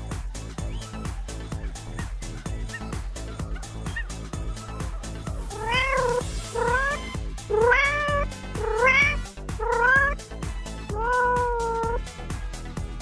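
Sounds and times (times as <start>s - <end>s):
background music with steady beat: 0.0s - 13.0s
cat meowing: 5.5s - 10.2s, 10.9s - 12.0s.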